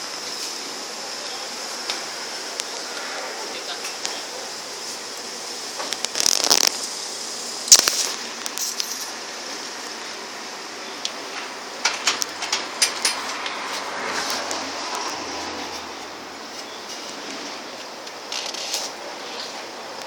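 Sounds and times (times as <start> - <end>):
steady background hiss: 0.0 - 20.0
sharp clicks and knocks: 11.4 - 13.6.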